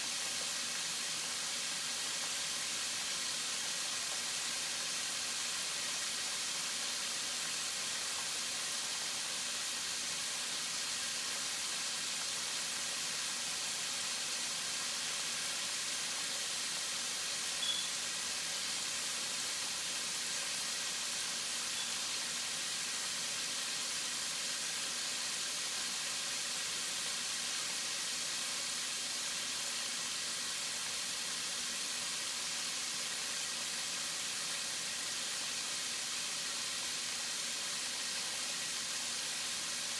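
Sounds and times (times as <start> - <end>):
food sizzling in a skillet: 0.0 - 39.9.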